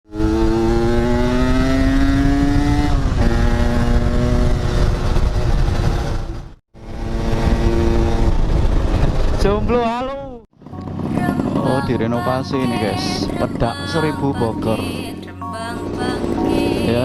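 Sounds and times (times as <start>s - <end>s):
motorcycle engine pulling away: 0.1s - 9.6s, 10.6s - 15.2s
heavy low rumble: 4.6s - 17.0s.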